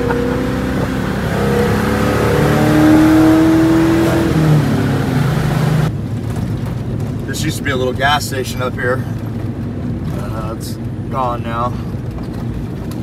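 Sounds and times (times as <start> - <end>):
car engine accelerating: 0.0 - 8.0
road noise: 0.0 - 13.0.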